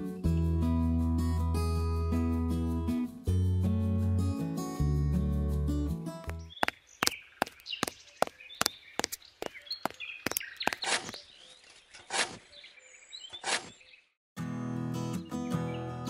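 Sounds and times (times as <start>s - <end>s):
birds chirping: 6.3s - 14.2s
metal hoe scraping gritty soil: 10.3s - 12.6s.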